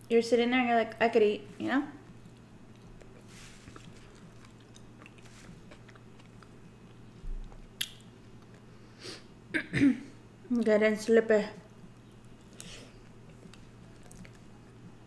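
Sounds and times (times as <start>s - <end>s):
chewing fries: 1.9s - 8.8s, 11.7s - 15.0s.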